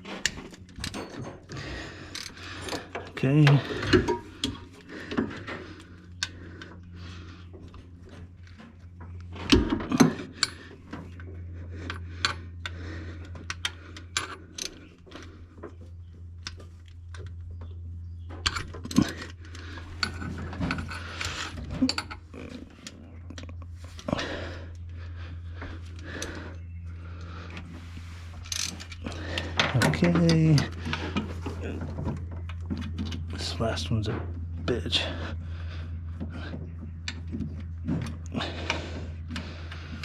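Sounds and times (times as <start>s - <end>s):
metal tools clinking and knocking: 0.0s - 5.9s, 18.4s - 24.2s
low steady hum: 0.0s - 40.0s.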